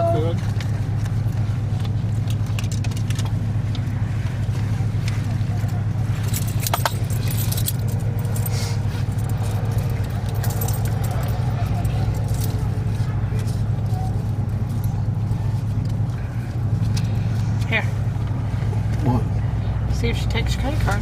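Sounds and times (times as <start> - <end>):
car engine idling: 0.0 - 21.0
light jingling clicks: 6.2 - 12.8.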